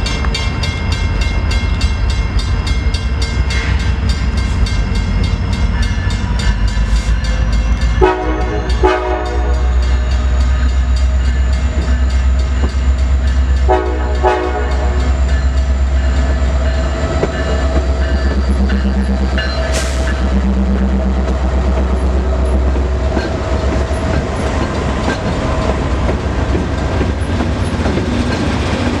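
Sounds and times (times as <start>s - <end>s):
train rumbling past: 0.0s - 29.0s
locomotive air horn blasts: 8.0s - 9.9s, 13.7s - 15.2s.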